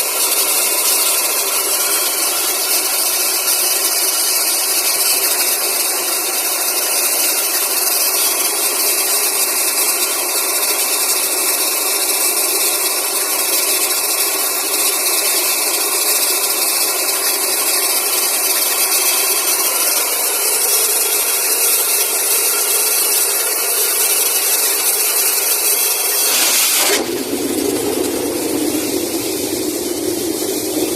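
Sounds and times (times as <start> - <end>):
air compressor running: 0.0 - 30.9
compressed air hissing: 25.8 - 30.9.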